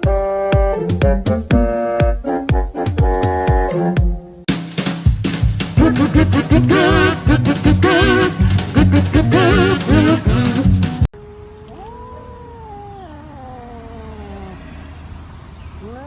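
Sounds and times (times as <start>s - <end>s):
loud music with drum beat: 0.0s - 11.1s.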